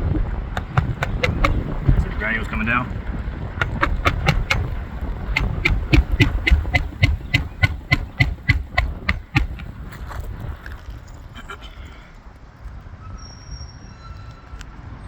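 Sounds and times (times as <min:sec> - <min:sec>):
wind rumble on microphone: 0:00.0 - 0:11.3
light taps on a roof shingle: 0:00.6 - 0:02.4, 0:03.6 - 0:09.8.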